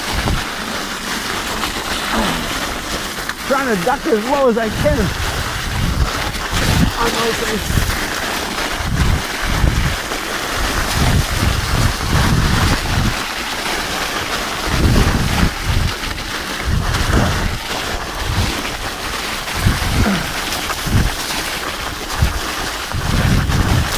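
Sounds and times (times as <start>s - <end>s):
studded bike tyres on ice: 0.0s - 23.9s
wind buffeting microphone: 4.6s - 8.0s, 8.8s - 10.0s, 10.6s - 13.2s, 14.6s - 16.0s, 16.6s - 17.6s, 19.5s - 21.2s, 22.2s - 23.9s.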